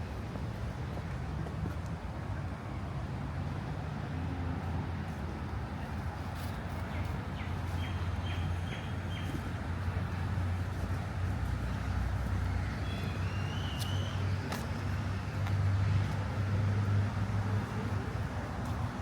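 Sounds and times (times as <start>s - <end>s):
city traffic hum: 0.0s - 19.0s.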